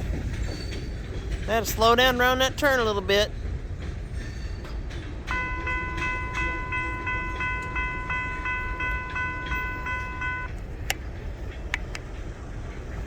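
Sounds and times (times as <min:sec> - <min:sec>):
freight train rumble: 0:00.0 - 0:13.0
crossing bell ringing: 0:05.2 - 0:10.5.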